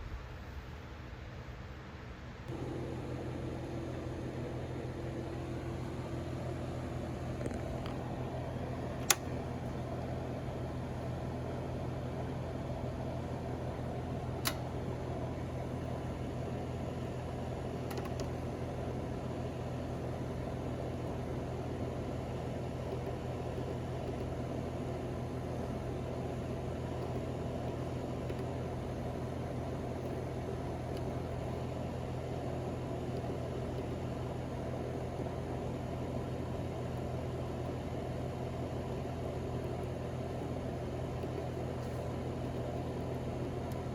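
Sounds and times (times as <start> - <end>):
machine hum with low drone: 2.4 - 43.9
sharp click: 9.0 - 9.4, 14.4 - 14.7, 17.9 - 18.3.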